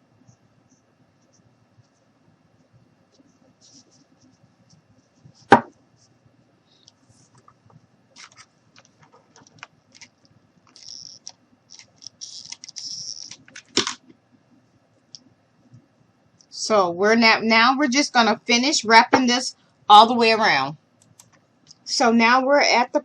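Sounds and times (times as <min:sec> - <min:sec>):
sharp knocks: 0:05.5 - 0:05.7
small clicks and rustles: 0:06.8 - 0:14.2.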